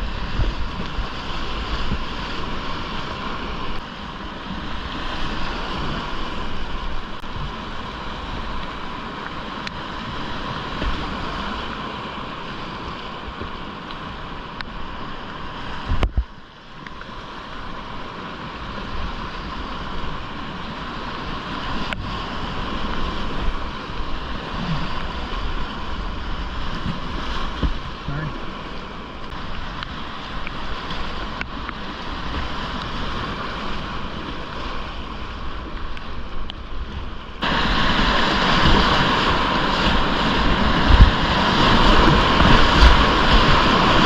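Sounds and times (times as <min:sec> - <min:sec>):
wind noise on microphone: 0:00.0 - 0:03.8, 0:15.7 - 0:16.4, 0:18.6 - 0:28.4, 0:29.3 - 0:44.0
whitewater rushing: 0:00.0 - 0:44.0.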